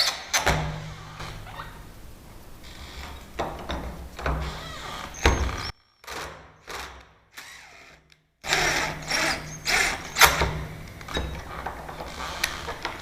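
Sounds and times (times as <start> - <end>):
power drill running in spurts: 5.4 - 10.5.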